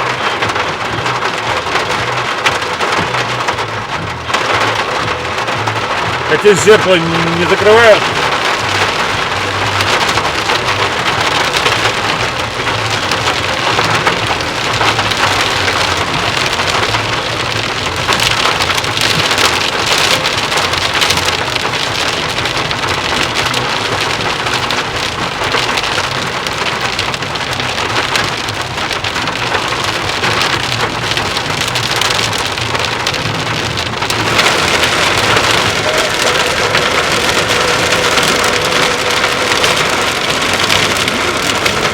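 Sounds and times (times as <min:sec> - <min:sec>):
heavy rain splashing: 0:00.0 - 0:41.9.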